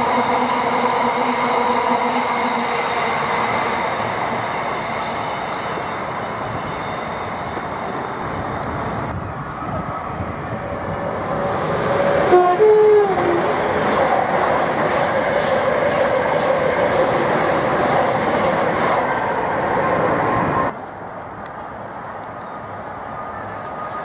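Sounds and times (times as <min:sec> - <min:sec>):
train passing with rush and rumble: 0:00.0 - 0:24.0
train horn: 0:12.0 - 0:13.6.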